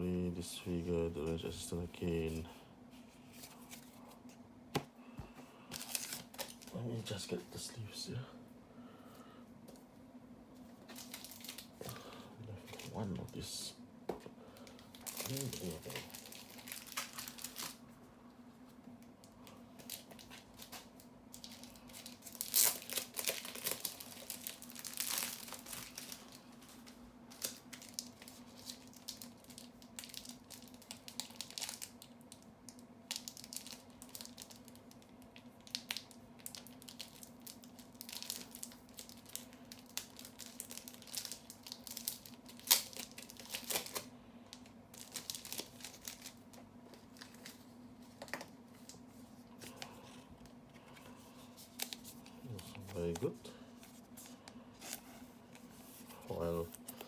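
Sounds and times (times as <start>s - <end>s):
faint hum: 0.0s - 57.0s
foil wrapper crinkling and tearing: 5.7s - 6.8s, 10.9s - 12.0s, 14.6s - 17.8s, 19.8s - 49.9s, 51.6s - 53.3s
cards and sleeves handled: 46.8s - 57.0s.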